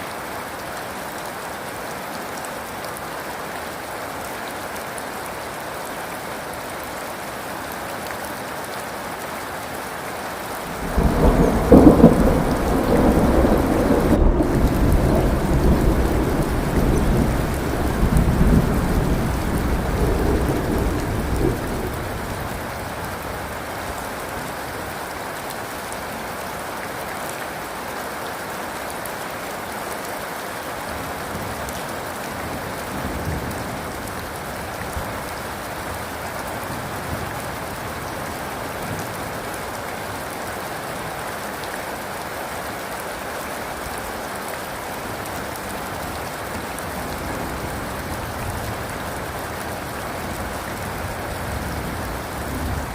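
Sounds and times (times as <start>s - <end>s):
steady rain falling: 0.0s - 52.9s
low rumble of thunder: 10.7s - 22.9s.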